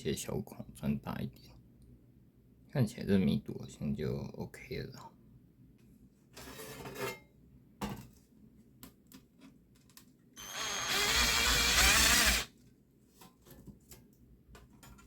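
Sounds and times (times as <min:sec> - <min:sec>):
electric drill boring through metal: 0:10.4 - 0:12.5.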